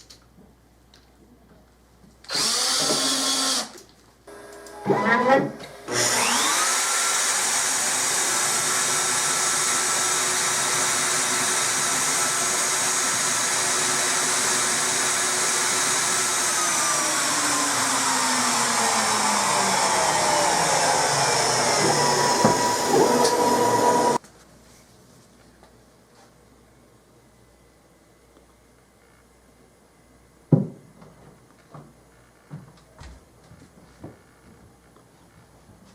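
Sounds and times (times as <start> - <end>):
router spindle whine: 2.3 - 3.6, 4.3 - 24.2.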